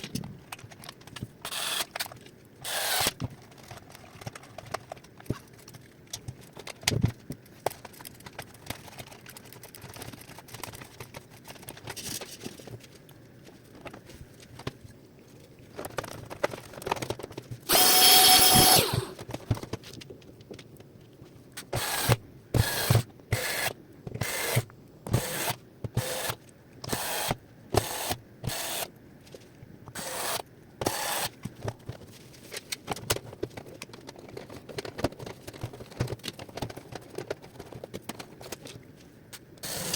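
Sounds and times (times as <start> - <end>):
electric screwdriver whirring: 1.5 - 1.9, 2.6 - 3.2, 17.7 - 19.2, 21.8 - 24.6, 25.2 - 28.9, 30.0 - 31.3.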